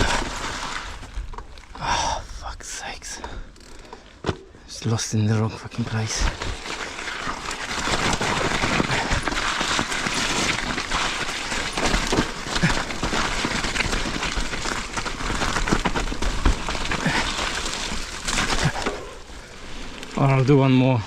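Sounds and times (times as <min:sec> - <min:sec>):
bike tyre rolling noise: 0:00.0 - 0:01.9, 0:05.7 - 0:21.0
bike chain and frame clattering: 0:06.1 - 0:20.2.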